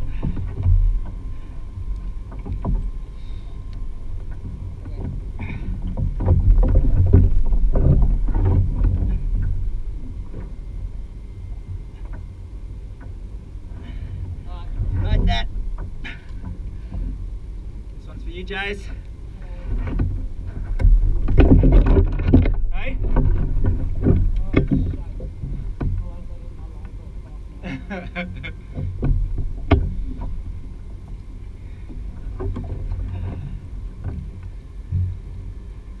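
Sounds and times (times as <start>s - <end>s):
wind on microphone: 0.0s - 26.4s
knocks and rattles on a kayak: 0.0s - 36.0s
low rumble: 0.0s - 36.0s
dull thump: 4.2s - 10.6s, 19.7s - 26.1s, 28.4s - 35.3s.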